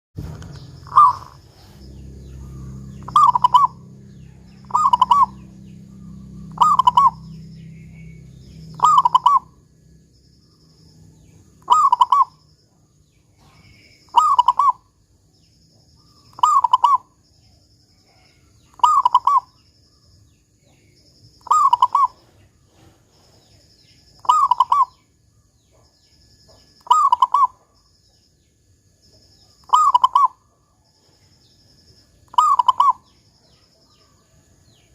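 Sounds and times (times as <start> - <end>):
low hum: 0.2 - 14.0
dove cooing: 0.6 - 9.7, 11.6 - 12.4, 13.4 - 14.9, 16.3 - 17.1, 18.1 - 19.5, 21.4 - 23.0, 24.2 - 25.0, 26.8 - 27.7, 29.6 - 30.4, 32.3 - 33.1.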